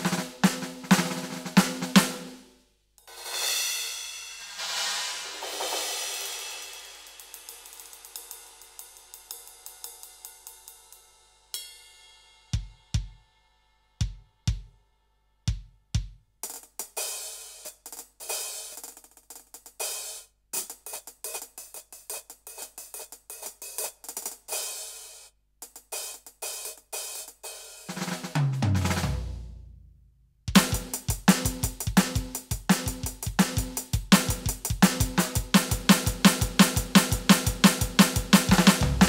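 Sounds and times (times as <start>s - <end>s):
drum groove on cymbals and hi-hat: 0.0s - 13.2s, 14.0s - 14.8s, 15.5s - 29.5s, 30.5s - 39.0s
drum fill falling in pitch: 33.4s - 39.0s.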